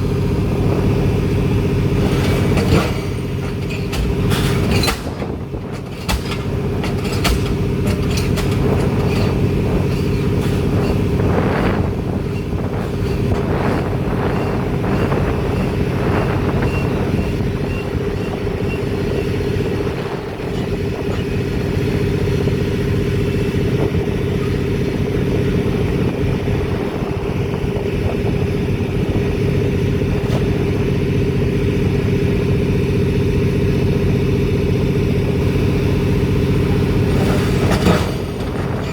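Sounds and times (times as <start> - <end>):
diesel engine running: 0.0 - 38.9
sharp metallic knocks: 2.6 - 11.2.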